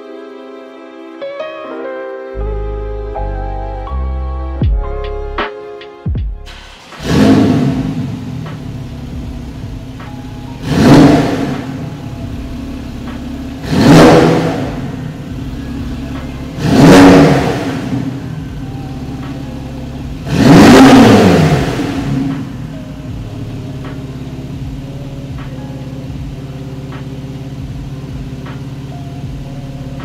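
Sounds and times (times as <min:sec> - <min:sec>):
car engine idling: 0:06.5 - 0:30.0
engine throttle blips: 0:06.5 - 0:30.0.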